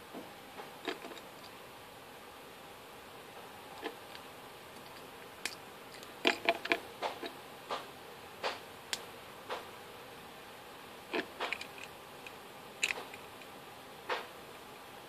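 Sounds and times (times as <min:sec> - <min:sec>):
plastic pieces clicking: 0:12.8 - 0:13.2.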